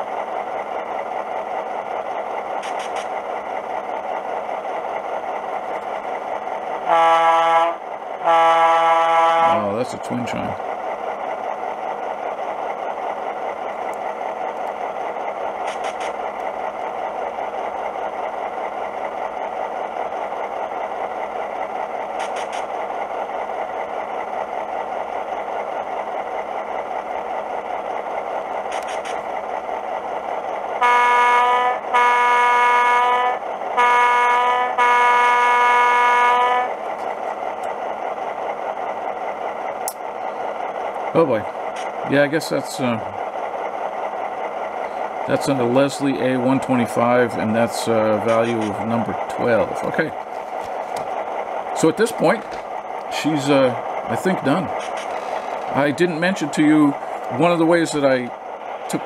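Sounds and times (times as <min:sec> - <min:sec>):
air horn blowing: 0:06.9 - 0:09.6, 0:30.8 - 0:36.7.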